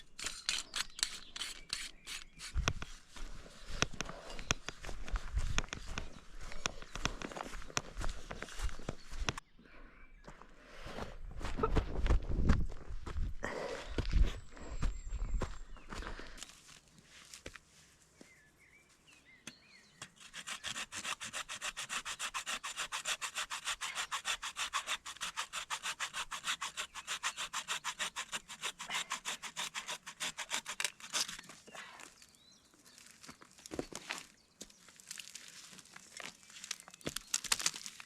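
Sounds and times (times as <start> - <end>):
hand saw cutting wood: 0.0 - 2.7, 20.0 - 31.5.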